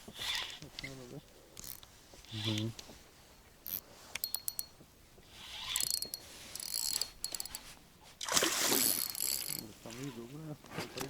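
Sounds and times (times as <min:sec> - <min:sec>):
spinning reel clicking whirr: 0:01.6 - 0:02.7, 0:03.7 - 0:04.7, 0:05.4 - 0:07.6, 0:08.8 - 0:09.6.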